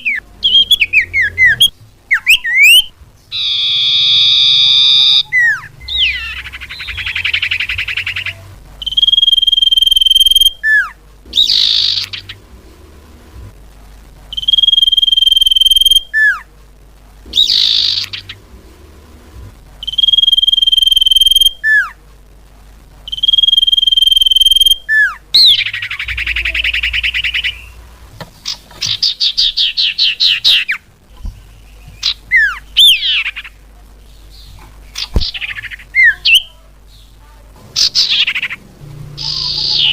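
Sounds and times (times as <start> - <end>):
buzzy rattled bird chatters: 0.0 - 10.5, 11.3 - 12.5, 17.3 - 18.4, 25.4 - 27.8, 37.8 - 38.6, 39.2 - 39.9.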